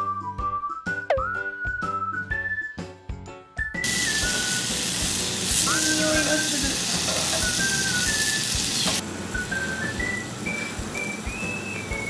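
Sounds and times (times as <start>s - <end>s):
music with whistled melody: 0.0s - 12.0s
meat sizzling on a grill: 3.8s - 12.0s.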